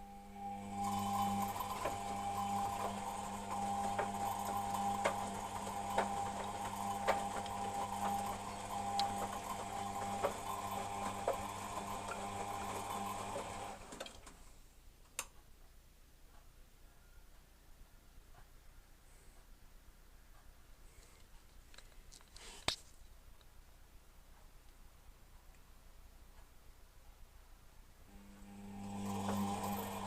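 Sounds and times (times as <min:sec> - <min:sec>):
washing machine motor humming: 0:00.0 - 0:14.4, 0:28.1 - 0:30.0
sharp clicks from washing machine: 0:00.8 - 0:14.4, 0:28.4 - 0:30.0.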